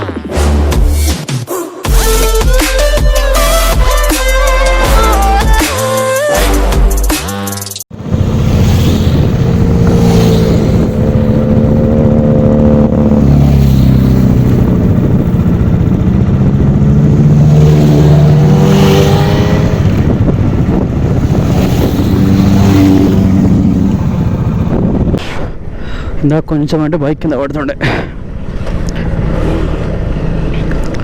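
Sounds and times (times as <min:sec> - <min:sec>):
electronic music: 0:00.0 - 0:07.8
motorcycle engine revving: 0:07.9 - 0:25.2, 0:28.2 - 0:31.0.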